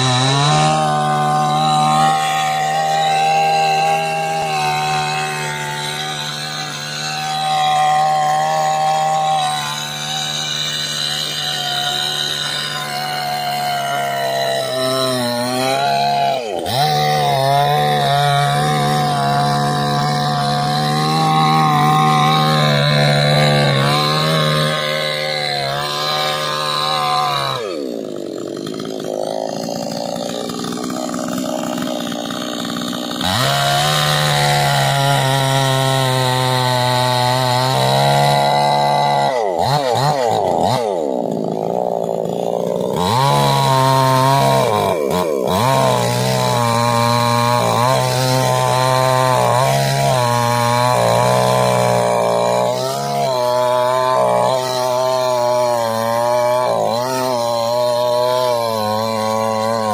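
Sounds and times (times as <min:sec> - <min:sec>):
chainsaw cutting tree: 0:00.0 - 0:59.9.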